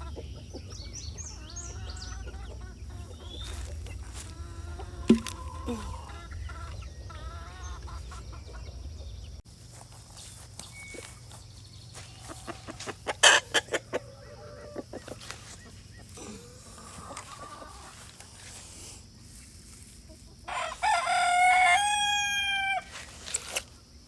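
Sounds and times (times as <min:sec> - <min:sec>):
chickens clucking: 0:00.0 - 0:23.0
low rumble: 0:02.7 - 0:09.4.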